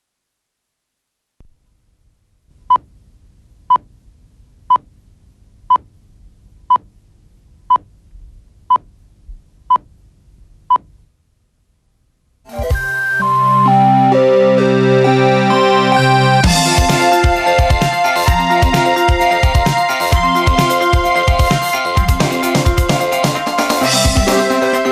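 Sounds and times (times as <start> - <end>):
faint low hum: 0.0 - 12.5.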